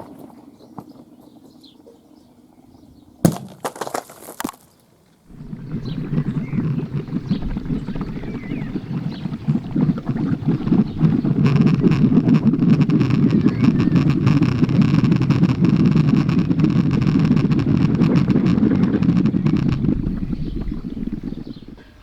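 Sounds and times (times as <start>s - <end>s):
firework burning under water: 5.3s - 21.5s.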